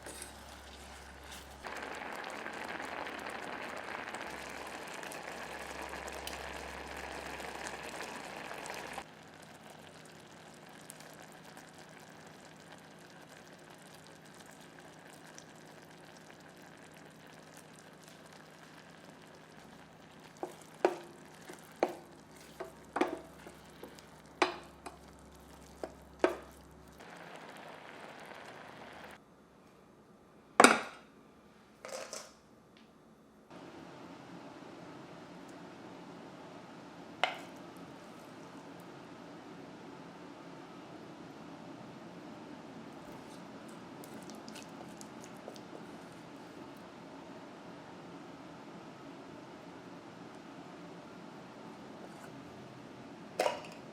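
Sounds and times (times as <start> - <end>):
food sizzling in a pot: 0.0 - 29.2, 37.2 - 37.7.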